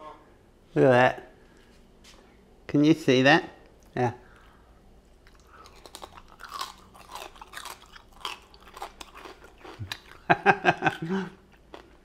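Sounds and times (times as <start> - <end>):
crunchy pork crackling chewing: 5.2 - 12.0.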